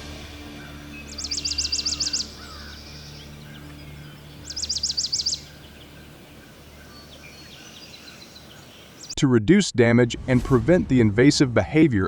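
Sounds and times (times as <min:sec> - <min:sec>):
songbird trilling: 0:00.6 - 0:09.2.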